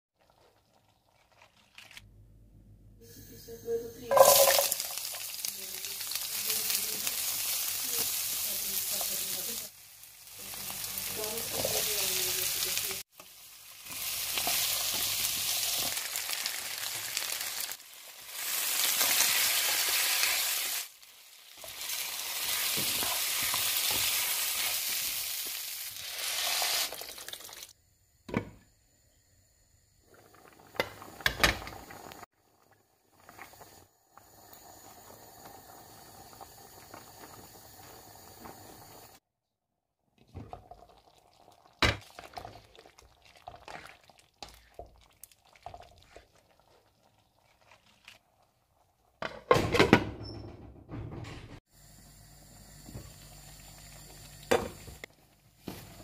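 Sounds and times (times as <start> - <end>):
potatoes sizzling in frying pan: 4.1 - 27.7.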